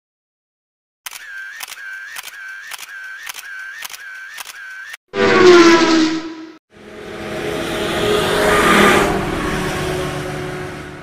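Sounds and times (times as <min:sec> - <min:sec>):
camera shutter clicking and whirring: 0:01.1 - 0:05.0
loud tone falling in pitch: 0:05.2 - 0:06.6.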